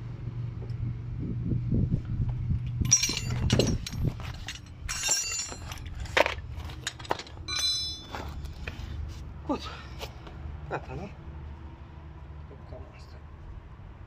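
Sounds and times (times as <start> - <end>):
low steady hum: 0.0 - 9.0
metal tools clinking: 2.8 - 8.4.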